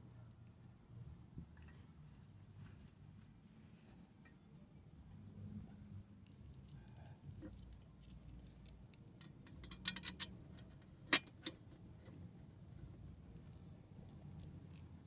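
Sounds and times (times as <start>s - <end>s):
metal parts clinking: 9.2s - 11.5s.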